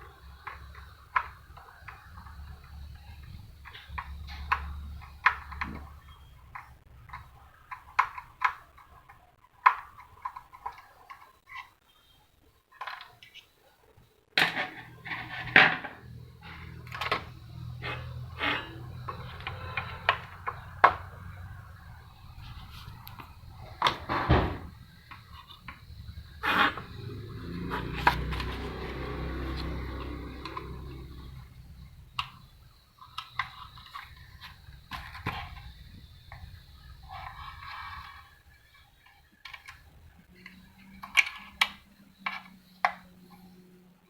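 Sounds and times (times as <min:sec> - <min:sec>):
steady low hum: 0:14.6 - 0:44.0
plastic and metal parts clicking: 0:39.0 - 0:43.5.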